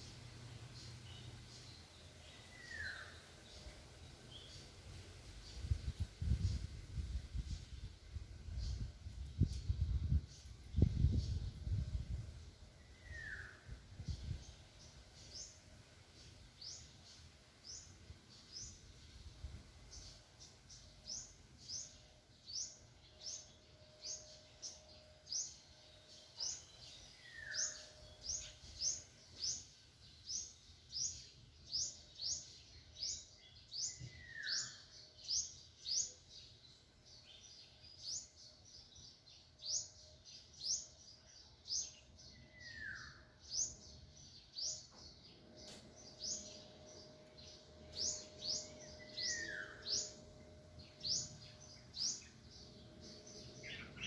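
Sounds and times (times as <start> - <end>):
high upward-sweeping bird chirps: 45.6 - 54.0.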